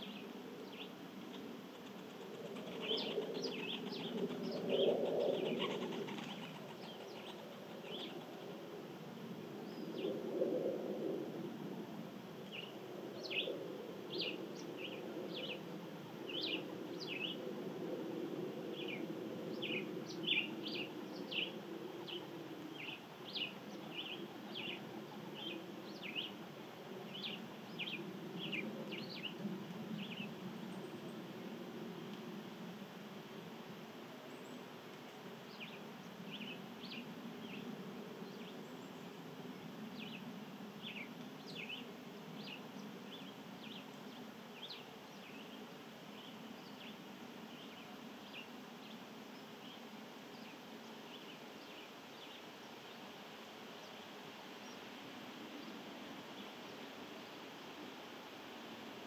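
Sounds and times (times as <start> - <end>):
low outdoor background noise: 0.0 - 59.0
birds chirping: 19.6 - 26.4.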